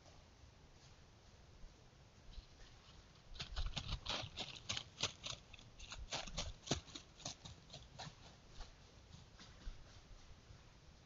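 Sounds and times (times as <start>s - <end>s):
crunching footsteps: 2.6s - 10.4s.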